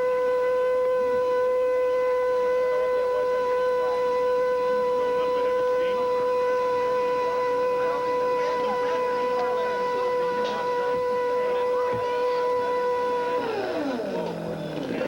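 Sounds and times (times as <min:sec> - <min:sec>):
vacuum cleaner motor whining: 0:00.0 - 0:15.0.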